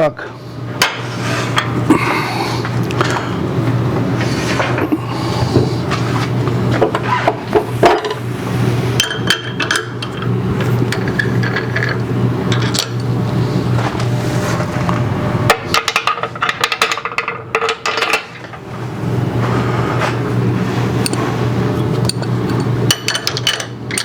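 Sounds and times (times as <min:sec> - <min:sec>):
low motor hum: 0:00.4 - 0:15.8.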